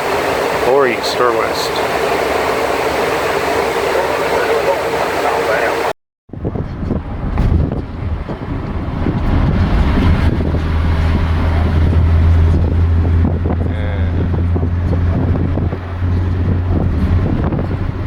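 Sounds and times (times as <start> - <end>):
strong low hum: 0.0 - 18.0
vehicle rumble and wind noise: 6.3 - 18.0.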